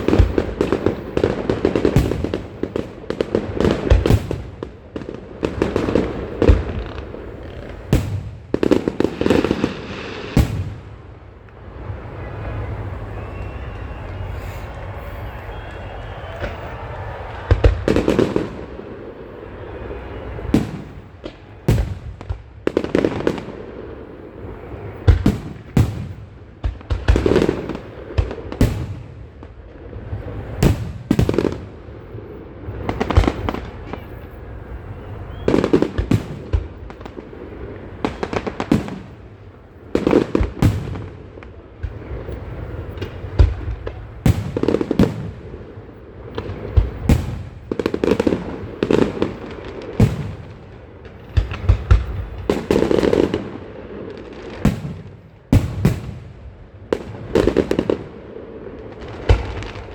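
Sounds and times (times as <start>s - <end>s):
fireworks bangs echoing: 0.0s - 59.9s.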